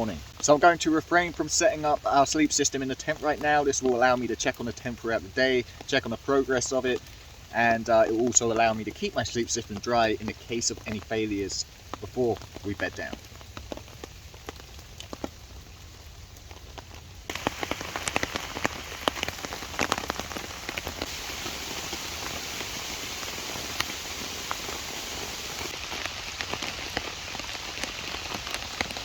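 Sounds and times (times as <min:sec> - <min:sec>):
steady rain drops: 0:00.0 - 0:29.0.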